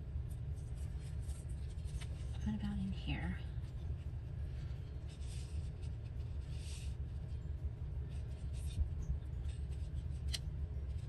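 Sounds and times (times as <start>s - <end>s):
steady low hum: 0.0s - 11.0s
paper rustling and scraping: 0.6s - 2.4s, 4.6s - 7.3s, 8.0s - 11.0s.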